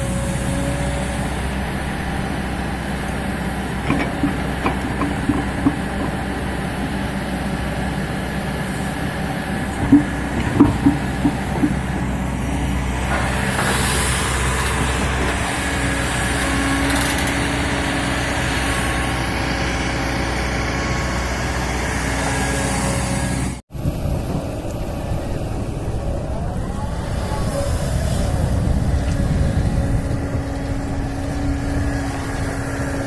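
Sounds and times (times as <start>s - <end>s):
excavator engine hum: 0.0s - 33.0s
short knocks: 3.8s - 6.6s, 9.7s - 12.2s.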